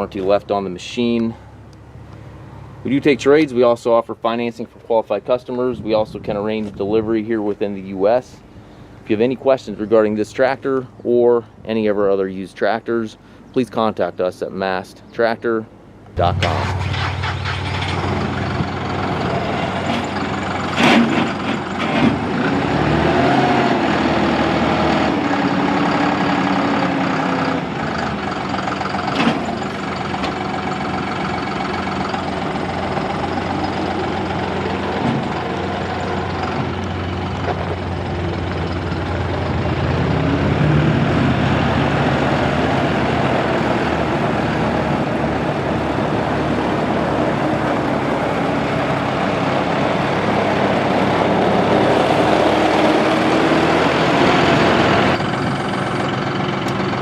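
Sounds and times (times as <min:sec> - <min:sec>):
diesel tractor engine running: 0:00.0 - 0:03.8, 0:15.8 - 0:57.0.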